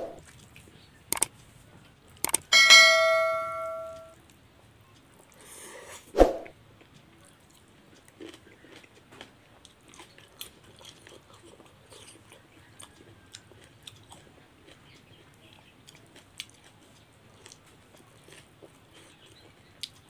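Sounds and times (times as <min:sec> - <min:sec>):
mouth smacks and clicks: 0:01.1 - 0:01.3, 0:02.2 - 0:02.5
person chewing food: 0:06.8 - 0:20.0.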